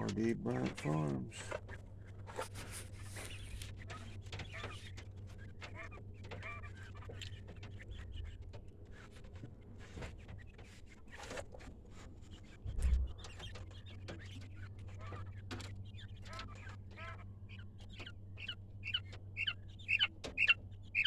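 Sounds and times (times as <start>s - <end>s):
young quail chirping: 0.0s - 8.4s, 12.3s - 21.0s
low thump: 12.7s - 13.2s.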